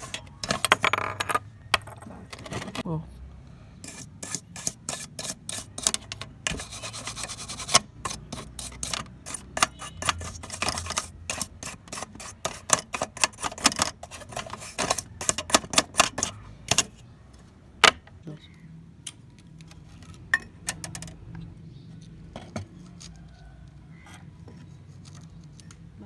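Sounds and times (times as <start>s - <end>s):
rubbing or scraping: 0.0s - 2.9s, 3.8s - 17.0s.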